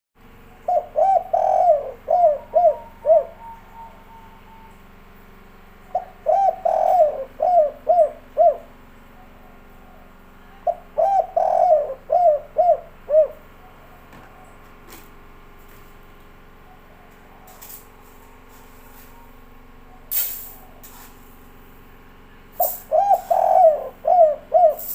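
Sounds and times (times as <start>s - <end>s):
dove cooing: 0.4s - 4.7s, 5.7s - 14.7s, 22.6s - 24.9s.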